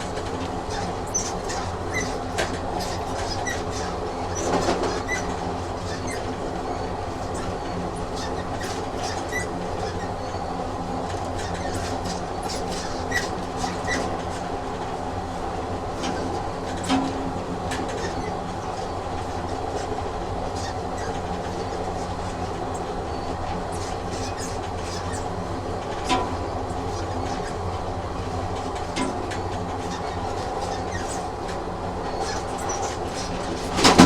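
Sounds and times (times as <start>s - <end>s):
train rumbling on rails: 0.0s - 34.0s.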